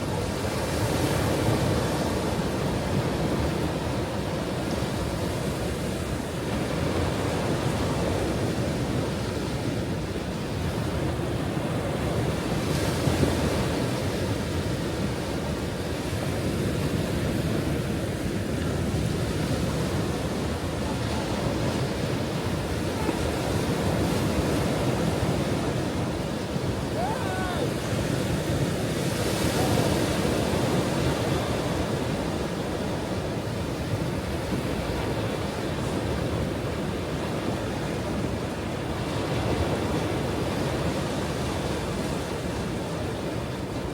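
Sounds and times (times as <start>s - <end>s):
ocean waves breaking on shore: 0.0s - 43.9s.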